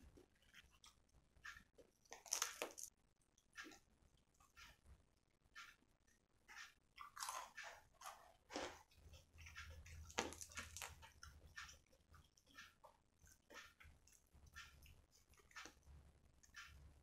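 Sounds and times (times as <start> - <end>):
person chewing crispy chicken: 0.1 - 2.9, 6.5 - 16.8.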